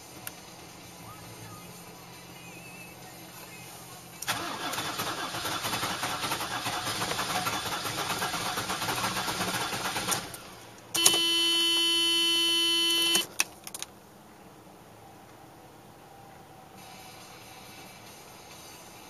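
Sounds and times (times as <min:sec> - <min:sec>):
diesel engine running rough: 0:00.0 - 0:10.8
clicks: 0:10.8 - 0:11.2
loud steady tone: 0:11.0 - 0:13.3.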